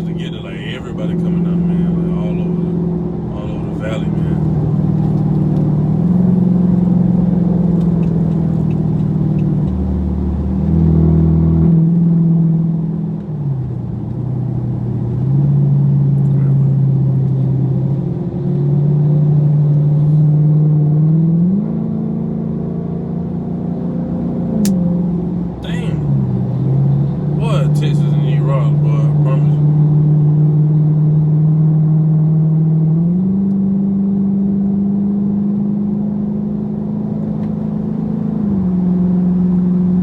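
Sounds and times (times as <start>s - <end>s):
car engine droning: 0.0s - 20.4s, 21.2s - 31.4s.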